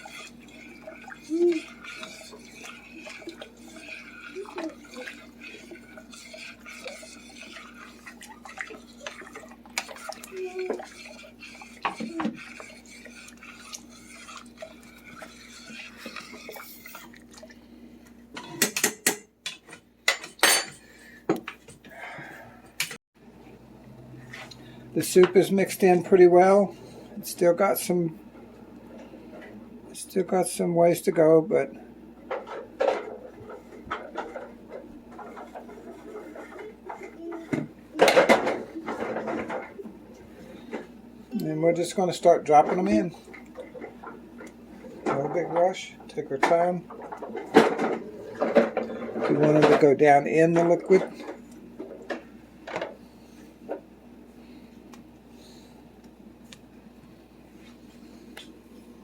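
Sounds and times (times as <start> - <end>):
metal spoon scraping a pot: 0.0 - 17.1
steady low hum: 0.0 - 18.6.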